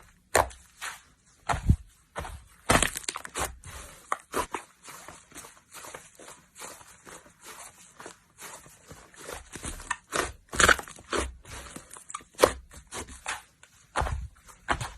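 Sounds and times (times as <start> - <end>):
slime popping and crackling: 2.6 - 4.4, 9.7 - 12.7.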